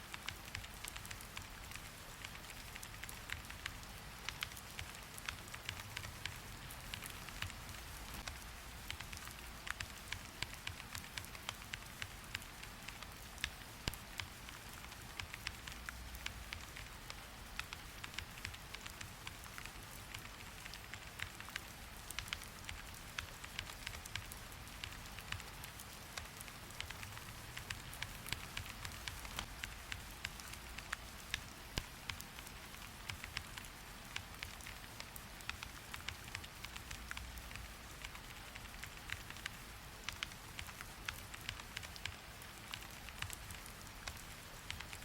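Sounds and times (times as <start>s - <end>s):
rain hissing: 0.0s - 45.0s
raindrops ticking on surface: 0.0s - 45.0s.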